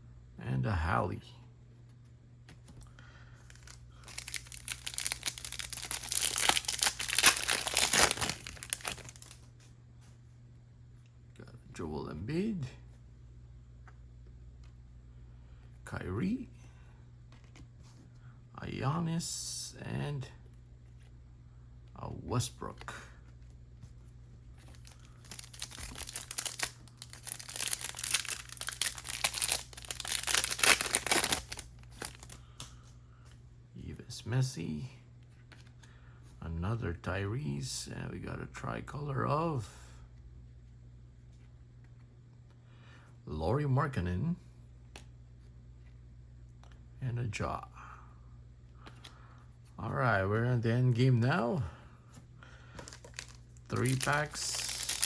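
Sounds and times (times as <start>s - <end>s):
wrapper tearing and crinkling: 3.5s - 9.4s, 24.7s - 32.4s, 52.8s - 55.0s.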